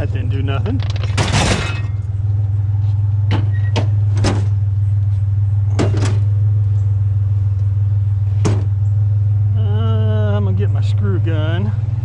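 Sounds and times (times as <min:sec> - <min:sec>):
vehicle engine idling: 0:00.0 - 0:12.0
metal knocks and clanks: 0:00.6 - 0:02.1.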